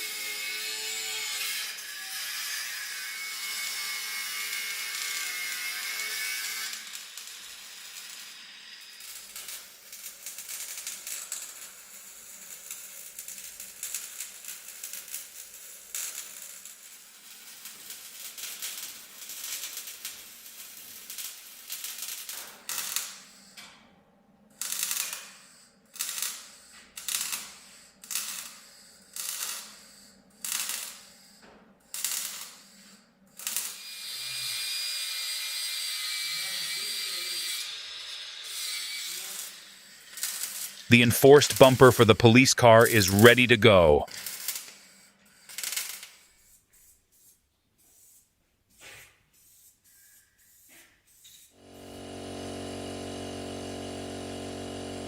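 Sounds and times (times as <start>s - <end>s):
hissing tool: 51.6s - 55.0s.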